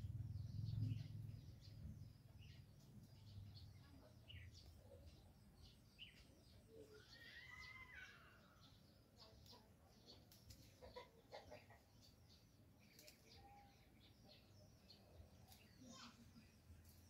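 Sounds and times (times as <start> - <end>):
bird chirps: 0.0 - 17.0.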